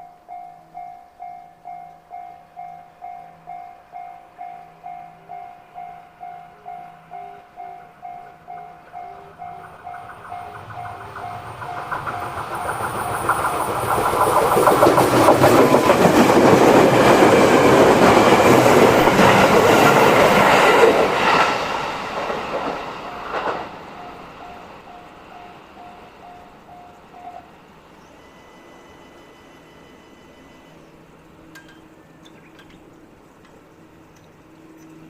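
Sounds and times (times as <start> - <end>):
level crossing warning bell: 0.0 - 13.2, 23.1 - 35.0
train wheels clacking over rail joints: 8.5 - 24.2.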